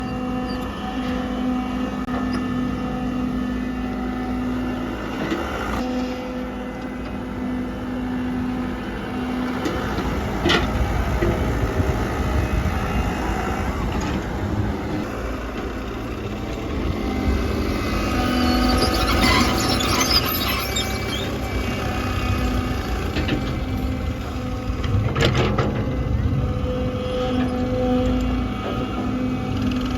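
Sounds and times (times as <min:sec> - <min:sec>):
diesel engine rumbling: 0:00.0 - 0:29.9.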